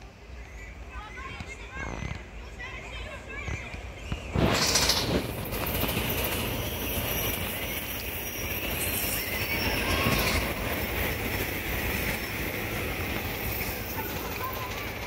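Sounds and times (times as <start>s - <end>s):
train wheels rumbling on rails: 0.0s - 15.0s
high wheel squeal: 4.4s - 15.0s.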